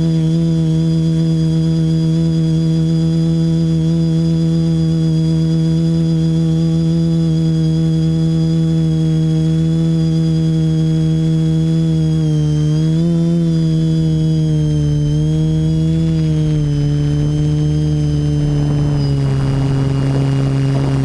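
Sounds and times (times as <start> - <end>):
quadcopter propellers droning: 0.0 - 21.0
low rushing noise: 15.2 - 21.0.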